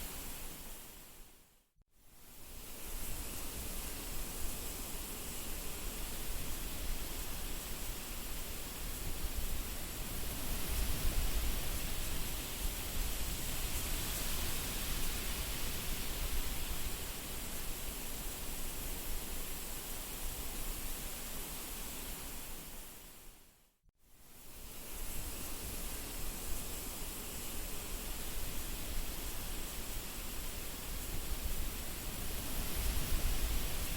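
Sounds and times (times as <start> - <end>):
wind blowing in gusts: 5.7 - 23.1, 24.6 - 33.9
wind buffeting microphone: 31.3 - 33.9.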